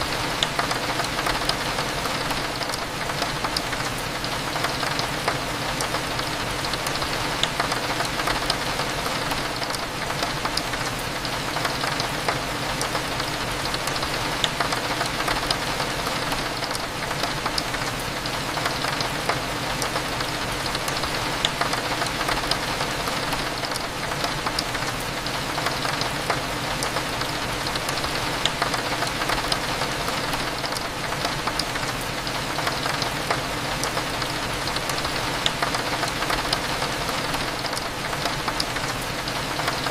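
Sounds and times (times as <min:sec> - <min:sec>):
rain against a window: 0:00.0 - 0:39.9.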